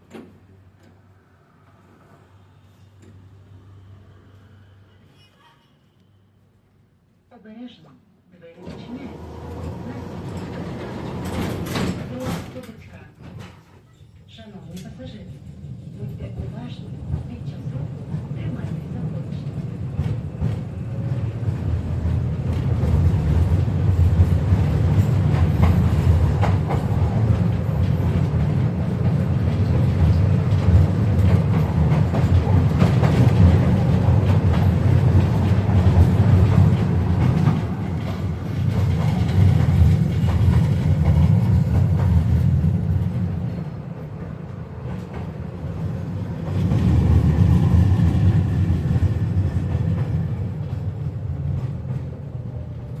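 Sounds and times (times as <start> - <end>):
tram wheels rumbling on rails: 8.6 - 13.7, 14.4 - 53.0
clacks over rail joints: 9.6 - 13.9, 22.0 - 47.0.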